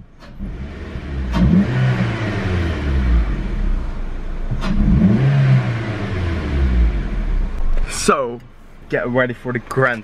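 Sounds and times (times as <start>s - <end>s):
car engine revving: 0.2s - 8.0s.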